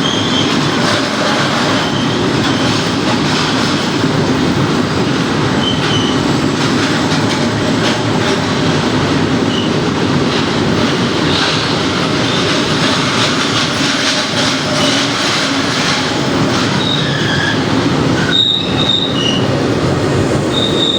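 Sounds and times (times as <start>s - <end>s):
high-pitched wheel squeals: 0.0s - 2.8s, 5.6s - 8.1s, 9.4s - 9.8s, 13.7s - 19.6s, 20.5s - 20.9s
train wheels rumbling on rail: 0.0s - 20.9s.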